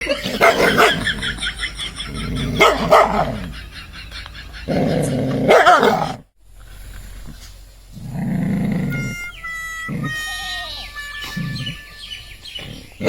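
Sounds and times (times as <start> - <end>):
dog barking: 0.2 - 1.3, 2.4 - 3.5, 5.4 - 6.2
steady pitched tone: 8.8 - 13.0.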